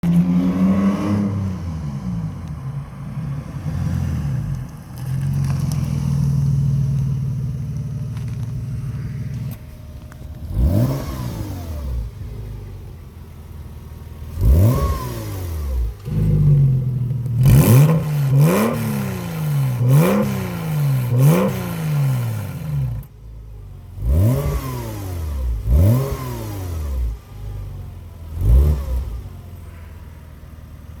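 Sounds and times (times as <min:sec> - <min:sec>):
engine revving sharply: 0:00.0 - 0:02.3, 0:10.4 - 0:12.2, 0:14.3 - 0:16.6, 0:17.4 - 0:23.0, 0:24.0 - 0:27.2
car engine running: 0:01.3 - 0:31.0.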